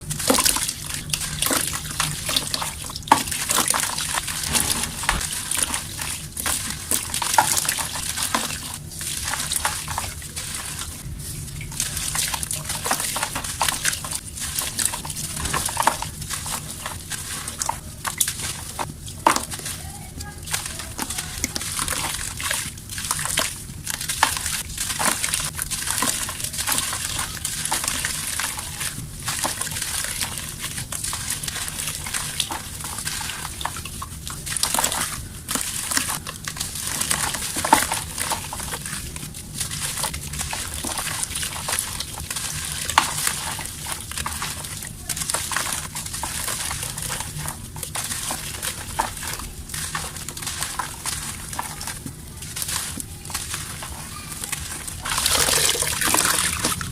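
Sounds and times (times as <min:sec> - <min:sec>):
dry mud crumbling and snapping: 0:34.3 - 0:56.9.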